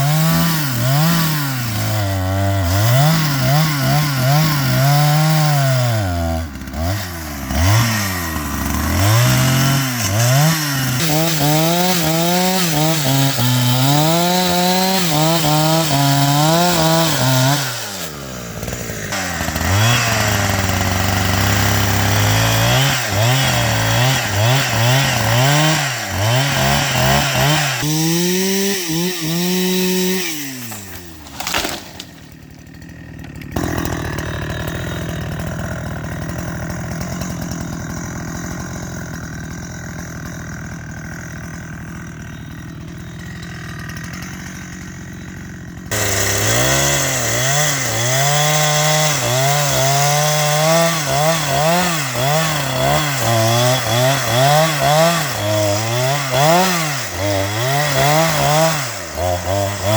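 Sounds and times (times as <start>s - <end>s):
chainsaw cutting wood: 0.0s - 59.9s
sharp crack: 30.7s - 32.4s.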